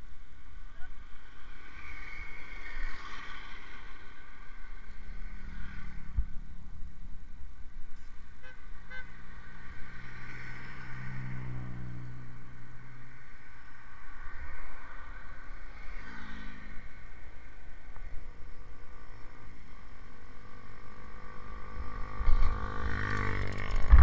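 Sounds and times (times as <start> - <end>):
motorcycle engine running: 18.4 - 24.0.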